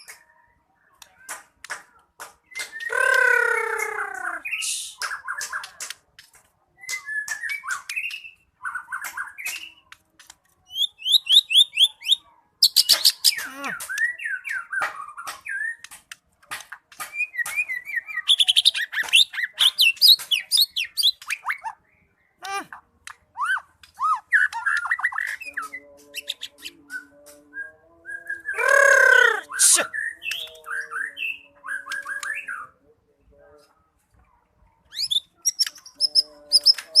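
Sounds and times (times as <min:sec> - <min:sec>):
songbird singing whistles and trills: 0:02.4 - 0:05.8, 0:06.8 - 0:10.0, 0:10.7 - 0:16.0, 0:17.0 - 0:22.1, 0:23.3 - 0:32.8, 0:34.9 - 0:37.0.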